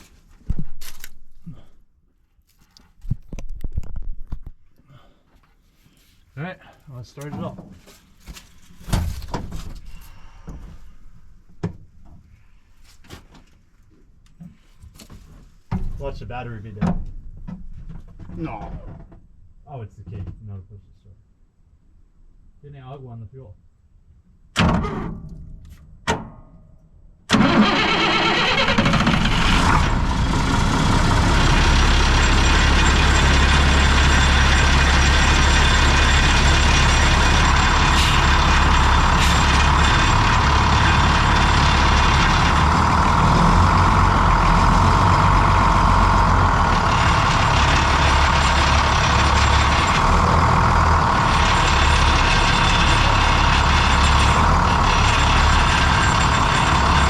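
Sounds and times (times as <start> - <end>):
diesel engine starting and idling: 27.3 - 57.0.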